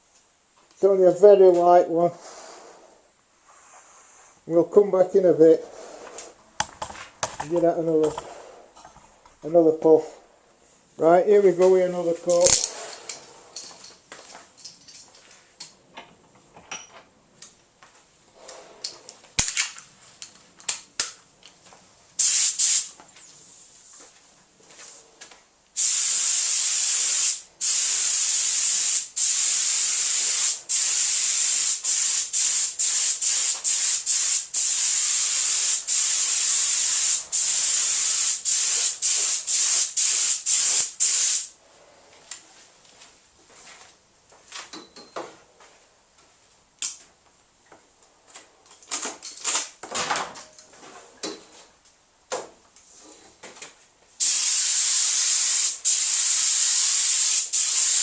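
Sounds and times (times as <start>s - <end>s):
spray paint hissing: 22.2s - 22.9s, 25.8s - 41.6s, 54.2s - 58.0s.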